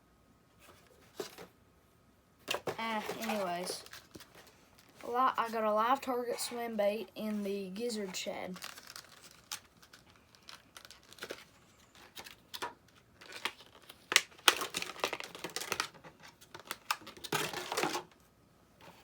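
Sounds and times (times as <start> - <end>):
plastic packaging rustling: 2.4 - 6.6, 8.1 - 18.2.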